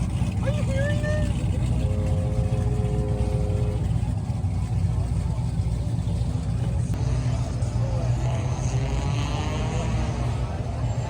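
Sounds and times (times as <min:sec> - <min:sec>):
car engine idling: 0:00.0 - 0:08.8
faint voices: 0:00.0 - 0:11.0.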